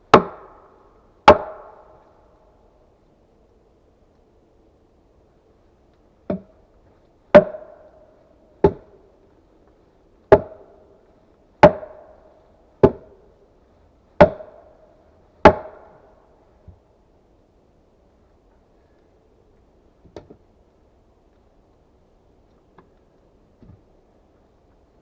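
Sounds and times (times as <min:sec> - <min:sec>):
small axe chopping wood: 0:00.1 - 0:00.5, 0:01.3 - 0:01.8, 0:07.3 - 0:07.8, 0:08.6 - 0:09.0, 0:10.3 - 0:10.7, 0:11.6 - 0:12.2, 0:12.8 - 0:13.2, 0:14.2 - 0:14.6, 0:15.4 - 0:15.9.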